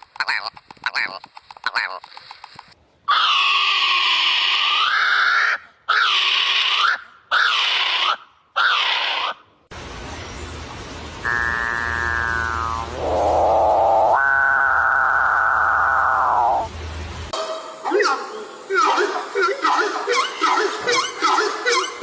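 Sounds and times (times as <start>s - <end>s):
steady background hiss: 15.7s - 21.9s
harsh bird calls: 17.8s - 22.0s
rapid rattling bird call: 18.7s - 22.0s.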